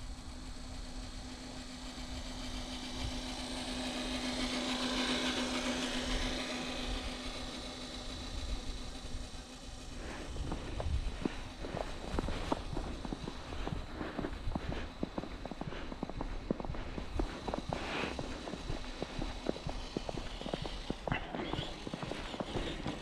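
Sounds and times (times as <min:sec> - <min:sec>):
electric motor whining: 0:09.9 - 0:23.0
footsteps: 0:10.0 - 0:23.0.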